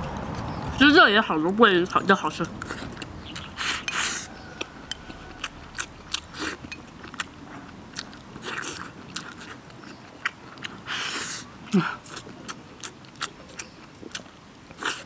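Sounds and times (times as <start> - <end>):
person chewing food: 1.8 - 15.0.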